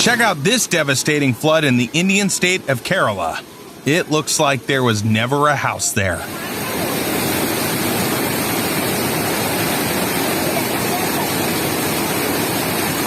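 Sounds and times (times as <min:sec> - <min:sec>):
floodwater rushing: 0:00.0 - 0:13.0
faint human voices: 0:06.1 - 0:07.2, 0:10.0 - 0:11.7.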